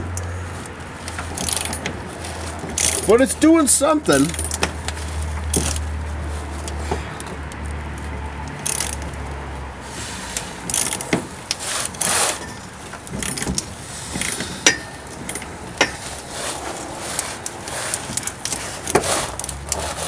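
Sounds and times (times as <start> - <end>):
socket wrench and metal clinking: 1.1 - 5.9, 8.5 - 9.2.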